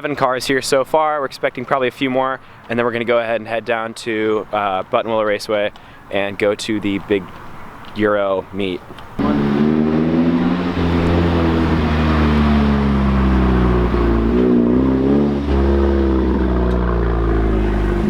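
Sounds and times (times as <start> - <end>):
car engine running loudly: 9.2 - 18.0.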